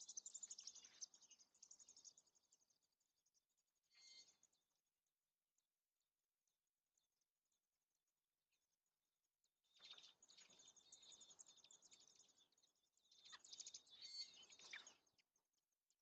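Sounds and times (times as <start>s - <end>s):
birds chirping: 0.0s - 2.8s, 9.7s - 15.2s.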